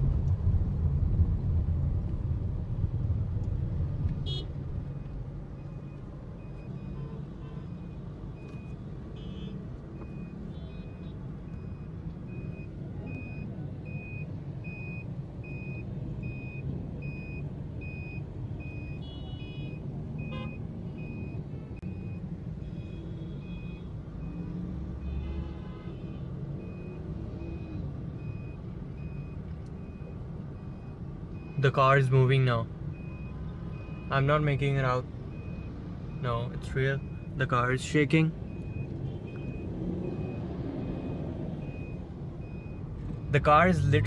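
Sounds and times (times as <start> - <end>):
steady low rumble: 0.0 - 6.3
reversing alarm beeps: 26.6 - 31.7, 32.9 - 34.3, 35.3 - 37.3, 38.5 - 44.0.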